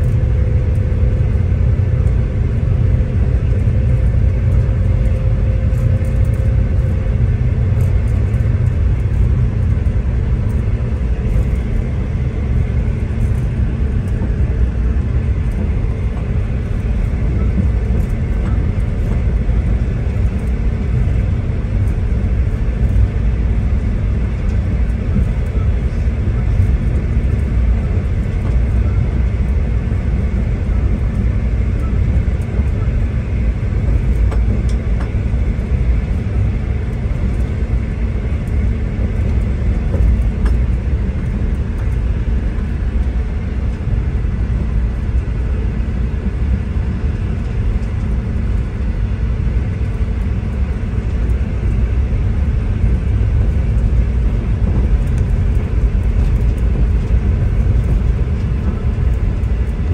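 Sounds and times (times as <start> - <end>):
diesel train rumbling: 0.0 - 59.9.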